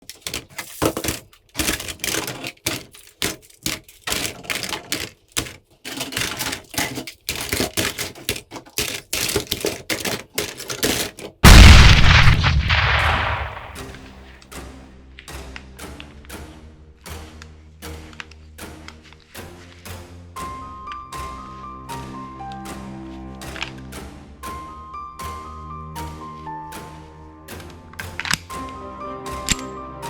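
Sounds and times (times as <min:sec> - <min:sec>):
loud boom: 0:11.4 - 0:14.1.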